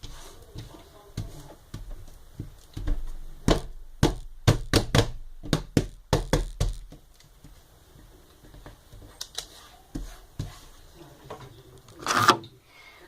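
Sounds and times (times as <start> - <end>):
faint handling sounds: 7.0 - 12.7.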